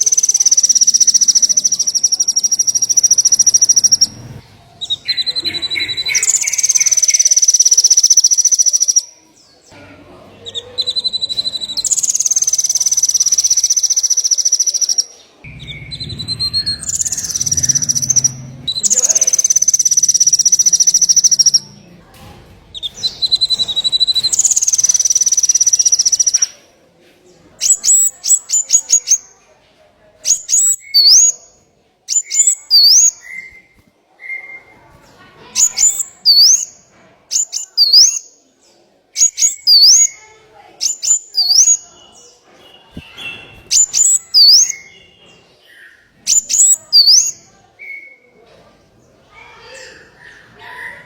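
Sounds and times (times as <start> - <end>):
high bird trill: 0.0 - 9.1, 10.4 - 22.1, 22.7 - 26.6, 27.6 - 29.3, 30.2 - 34.8, 35.5 - 38.4, 39.2 - 48.1
songbird singing: 0.0 - 26.7, 27.3 - 29.4, 30.2 - 48.5.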